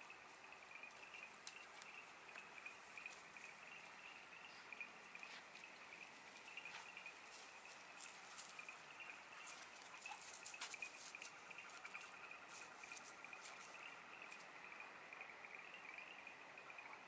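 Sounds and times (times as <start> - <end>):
faint insect chirring: 0.0 - 17.0
faint clicks: 0.8 - 3.2.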